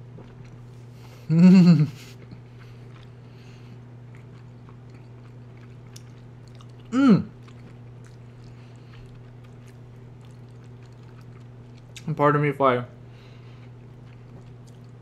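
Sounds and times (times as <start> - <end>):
person chewing: 0.0 - 12.1, 13.2 - 15.0
steady low hum: 0.0 - 15.0
person humming mmm: 1.2 - 2.2, 6.9 - 7.4.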